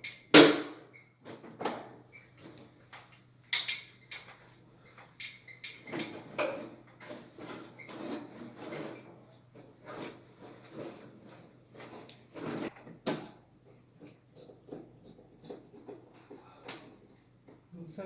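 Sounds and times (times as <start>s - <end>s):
hard objects knocking and clattering: 12.5s - 17.7s.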